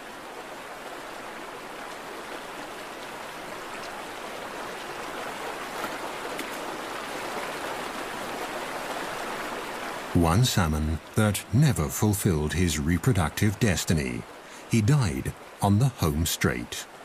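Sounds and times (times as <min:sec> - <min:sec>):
stream water flowing: 0:00.0 - 0:17.0
faint clicks: 0:03.7 - 0:04.0.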